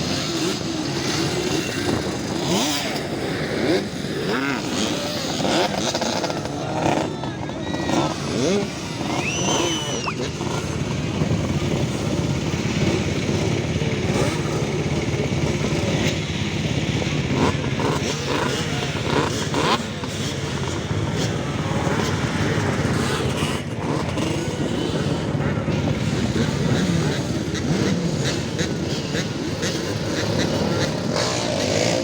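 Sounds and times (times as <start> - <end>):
motorcycle engines running: 0.0 - 32.0.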